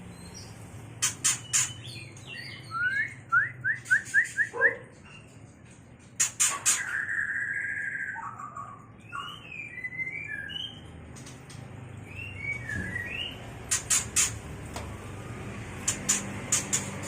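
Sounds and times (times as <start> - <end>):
bird whistled chirps: 1.5 - 4.8, 6.7 - 10.8, 12.0 - 13.4
sharp clicks: 15.8 - 17.0.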